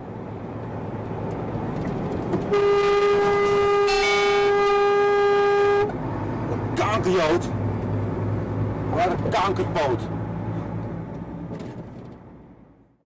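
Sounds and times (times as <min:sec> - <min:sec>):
moving car road and engine noise: 0:00.0 - 0:13.0
vehicle horn blast: 0:02.5 - 0:06.0.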